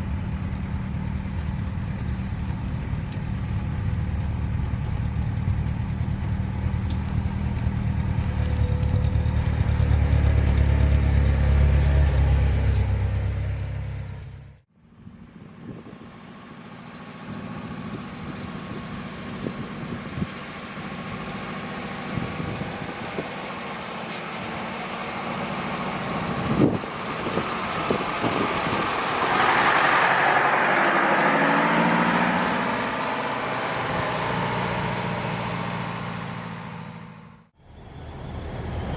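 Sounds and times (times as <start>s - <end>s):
heavy truck engine running: 0.0s - 38.9s.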